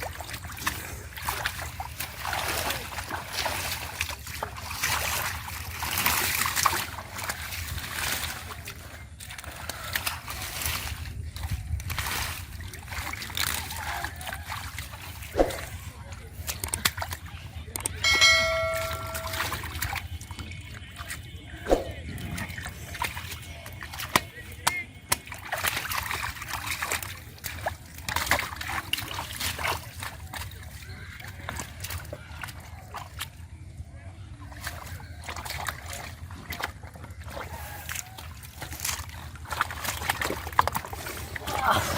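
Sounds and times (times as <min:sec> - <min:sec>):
muddy water splashing and trickling: 0:00.0 - 0:41.9
loud bell-like ding: 0:18.0 - 0:19.7.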